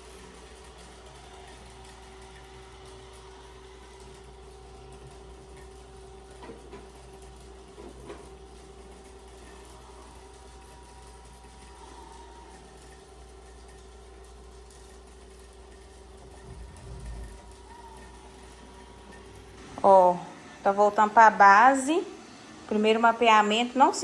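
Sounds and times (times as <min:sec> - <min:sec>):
robot vacuum motor whine: 0:16.3 - 0:23.5.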